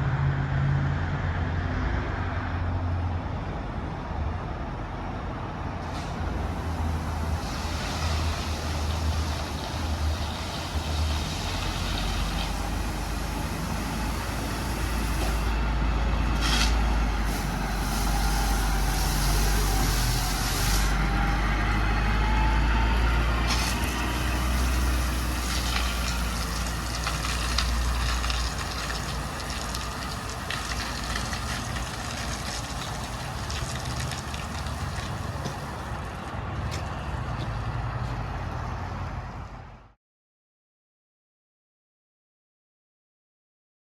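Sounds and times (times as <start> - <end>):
engine running with low drone: 0.0 - 40.0
hiss: 5.9 - 15.6, 16.4 - 21.0, 23.5 - 36.0.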